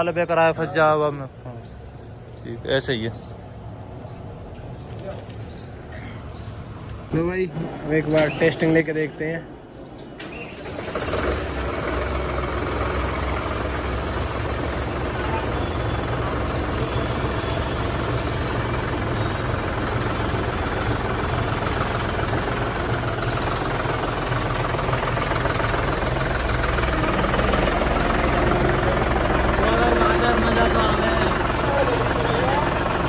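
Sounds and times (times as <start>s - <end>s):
tractor diesel engine throbbing: 10.2s - 33.0s.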